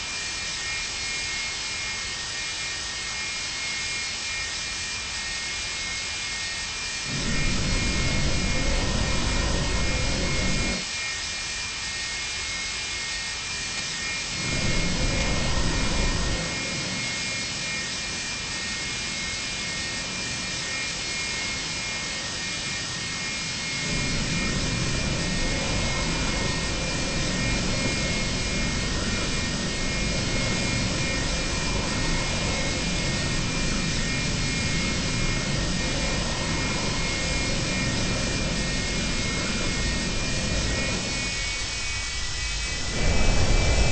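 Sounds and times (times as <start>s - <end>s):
jet cabin hiss and whine: 7.0s - 10.8s, 13.7s - 43.9s
low rumble: 7.1s - 10.8s, 14.4s - 16.9s, 23.8s - 43.9s.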